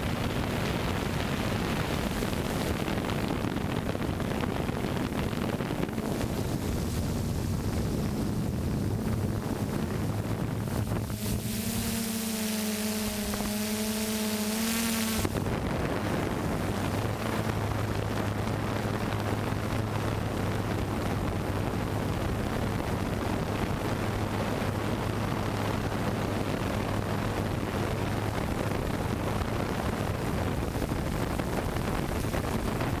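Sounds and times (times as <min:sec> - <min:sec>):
drone propellers rushing: 0:00.0 - 0:20.0
low steady hum: 0:00.0 - 0:33.0.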